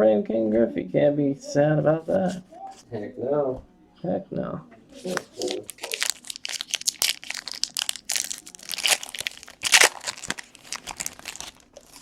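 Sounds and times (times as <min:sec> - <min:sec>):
card pack wrappers crinkling: 0:05.0 - 0:12.0.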